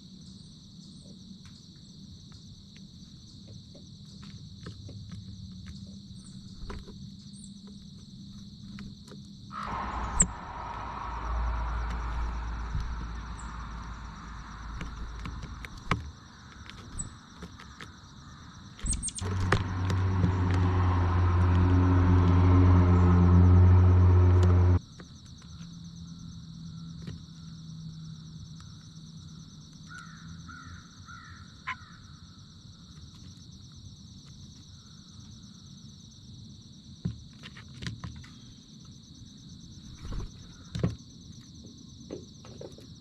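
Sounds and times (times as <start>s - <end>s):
insects chirring: 0.0s - 43.0s
low engine hum: 9.5s - 16.1s, 18.9s - 24.8s
low rumble: 9.6s - 15.9s, 19.2s - 24.8s.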